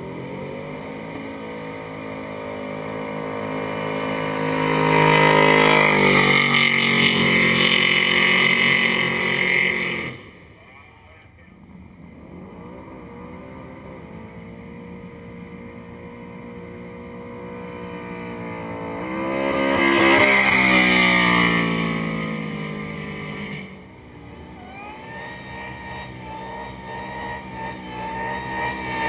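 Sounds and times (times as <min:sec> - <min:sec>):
distant second car engine revving: 0:00.0 - 0:10.4, 0:17.8 - 0:29.0
car engine revving during burnout: 0:00.0 - 0:10.6, 0:17.4 - 0:29.0.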